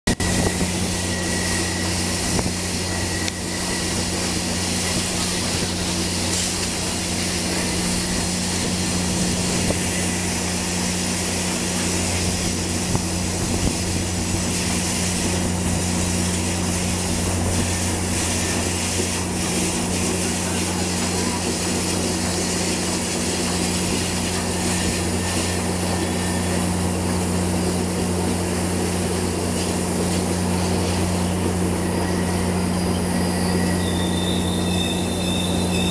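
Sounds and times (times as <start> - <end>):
low mechanical drone: 0.0 - 35.9
faint high whine: 0.1 - 19.5, 29.0 - 35.9
rolling rail noise: 0.1 - 35.9.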